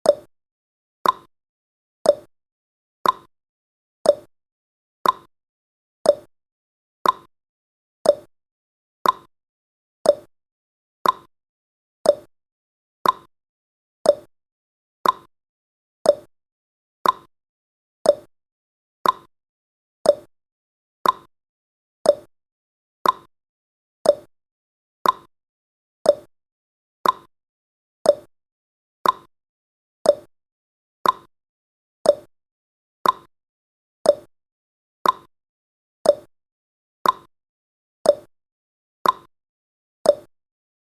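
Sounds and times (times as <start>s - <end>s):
clock ticking: 3.0s - 3.3s, 5.0s - 5.3s, 7.0s - 7.3s, 9.0s - 9.3s, 11.0s - 11.3s, 13.0s - 13.3s, 15.0s - 15.3s, 16.1s - 16.3s, 17.0s - 17.3s, 19.0s - 19.3s, 21.0s - 21.3s, 22.1s - 22.3s, 23.0s - 23.3s, 24.0s - 24.3s, 25.0s - 25.3s, 26.1s - 26.3s, 27.0s - 27.3s, 28.1s - 28.3s, 29.0s - 29.3s, 30.1s - 30.3s, 31.0s - 31.3s, 32.1s - 32.3s, 33.0s - 33.3s, 34.1s - 34.3s, 35.0s - 35.3s, 36.1s - 36.3s, 37.0s - 37.3s, 38.1s - 38.3s, 39.0s - 39.3s, 40.1s - 40.3s.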